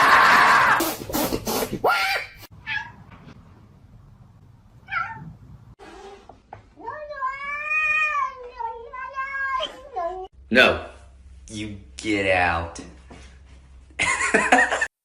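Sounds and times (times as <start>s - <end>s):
cat meowing: 1.9s - 3.0s, 4.8s - 6.2s, 6.8s - 10.3s.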